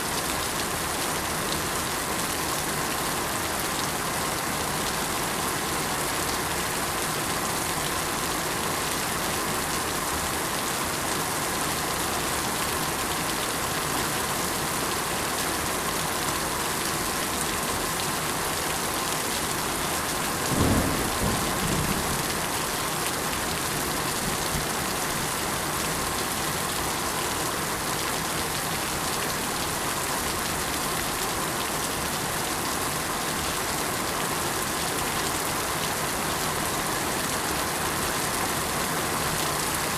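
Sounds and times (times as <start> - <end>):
steady rain falling: 0.0 - 39.9
low rumble of thunder: 20.5 - 22.5.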